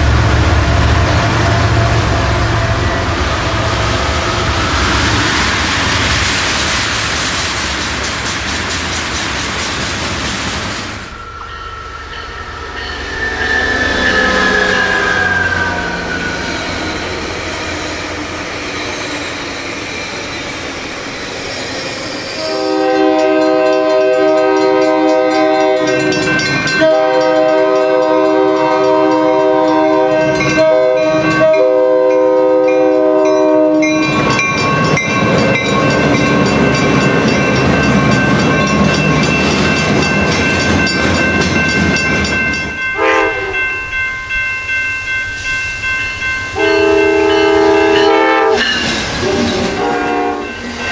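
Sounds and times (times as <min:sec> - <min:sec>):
rail noise with ringing tone: 0:00.0 - 0:50.9
train wheels clattering: 0:04.4 - 0:43.2, 0:45.3 - 0:50.9
train air horn: 0:11.3 - 0:16.4, 0:22.4 - 0:34.2, 0:43.0 - 0:43.6, 0:46.6 - 0:50.6.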